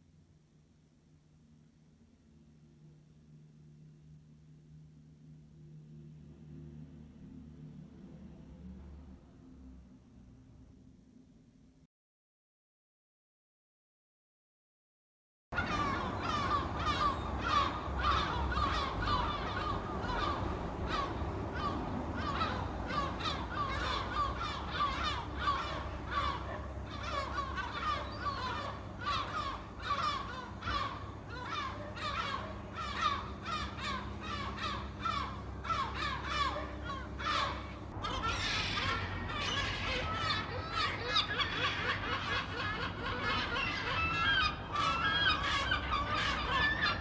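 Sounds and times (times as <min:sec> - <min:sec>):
gulls calling: 0:15.6 - 0:47.0.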